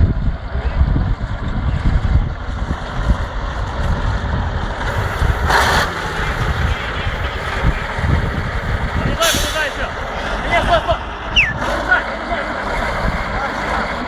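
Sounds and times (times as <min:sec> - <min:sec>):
vehicle engine low rumble: 0:00.0 - 0:14.0
short hiss: 0:07.2 - 0:09.9.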